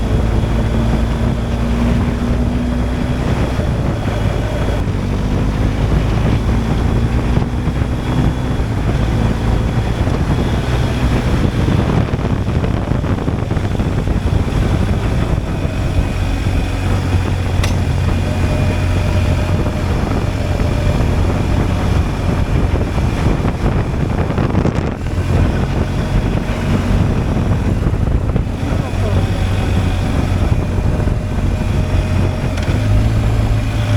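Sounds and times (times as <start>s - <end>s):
motorcycle engine cruising: 0.0s - 33.9s
wind rushing over microphone: 0.0s - 33.9s.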